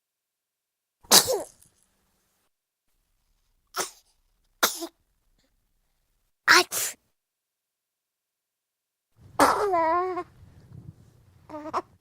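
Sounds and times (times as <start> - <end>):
baby sneezing: 1.0 - 1.7, 3.7 - 5.0, 6.5 - 7.0, 9.4 - 9.8.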